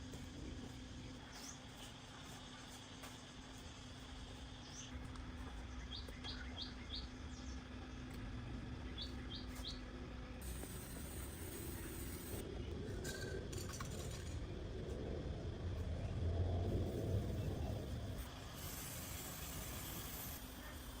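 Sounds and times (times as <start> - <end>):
steady low rumble: 0.0 - 20.4.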